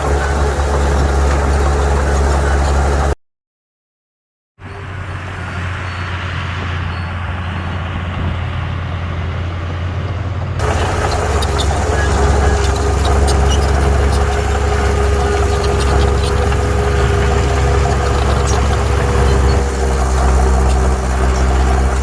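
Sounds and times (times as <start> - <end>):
heavy machinery diesel engine: 0.0 - 3.2, 4.6 - 22.0
steady machine whine: 0.0 - 3.2, 10.6 - 22.0.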